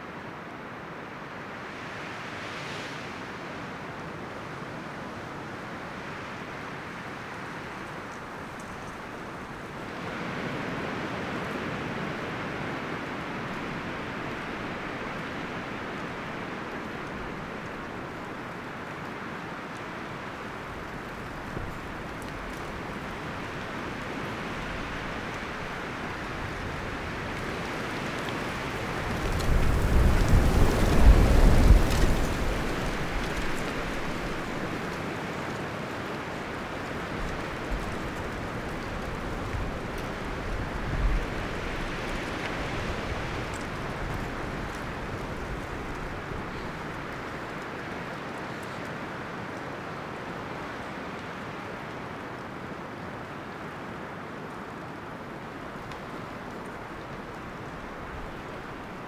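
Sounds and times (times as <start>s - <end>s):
wind rustling through leaves: 0.0s - 59.0s
strong wind gust rumbling: 24.8s - 35.0s.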